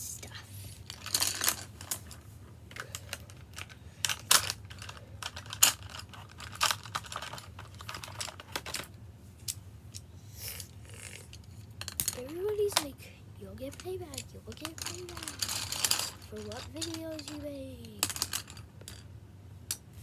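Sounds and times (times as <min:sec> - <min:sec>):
markers clicking and clattering: 0:00.8 - 0:08.9, 0:13.6 - 0:19.0.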